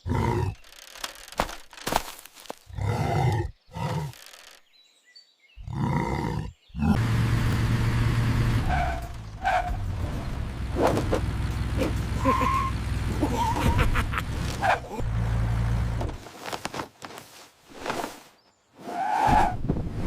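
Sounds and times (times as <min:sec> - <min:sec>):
cartoon animal straining grunts: 0:02.7 - 0:04.2.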